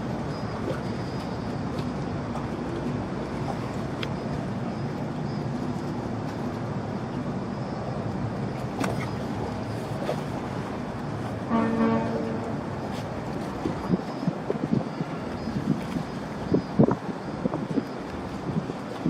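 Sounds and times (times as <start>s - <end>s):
short horn toot: 11.5s - 12.6s.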